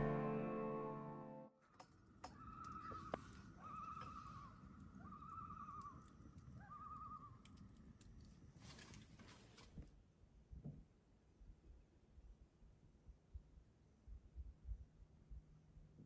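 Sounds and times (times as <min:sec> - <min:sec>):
bird trilling: 0:02.3 - 0:07.4.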